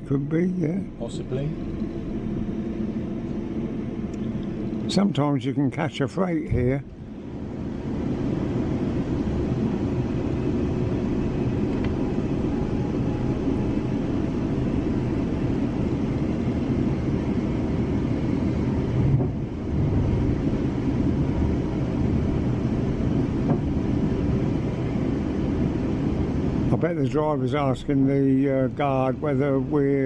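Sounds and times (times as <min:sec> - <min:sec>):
train wheels rumbling on rails: 0:18.9 - 0:20.2, 0:23.2 - 0:23.8.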